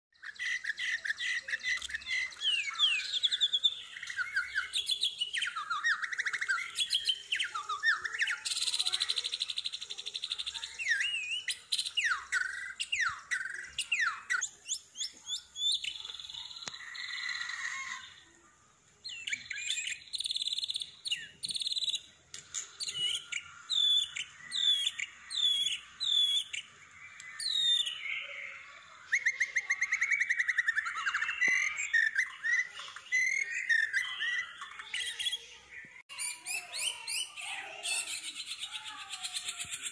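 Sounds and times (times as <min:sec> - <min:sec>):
songbird singing: 0:00.1 - 0:39.9.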